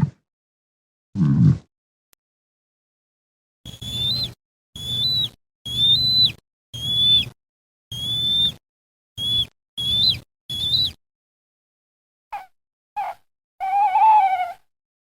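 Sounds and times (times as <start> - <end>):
eagle whistled calls: 3.7 - 8.6, 9.2 - 11.0, 13.0 - 14.6.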